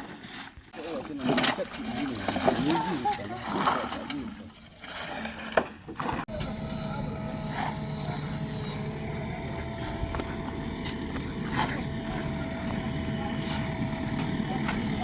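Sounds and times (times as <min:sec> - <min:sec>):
heavy diesel engine running: 0:06.3 - 0:15.0.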